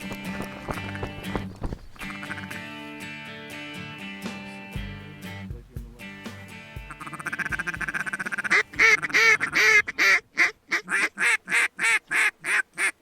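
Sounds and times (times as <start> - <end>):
duck call quacks: 0.7 - 1.2, 2.0 - 2.8, 6.8 - 13.0.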